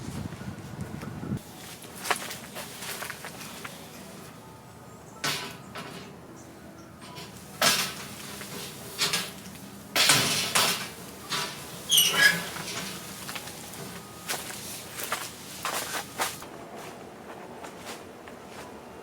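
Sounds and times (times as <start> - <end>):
rustling and knocking of objects: 7.2 - 18.0
brief falling squeak: 11.9 - 12.6.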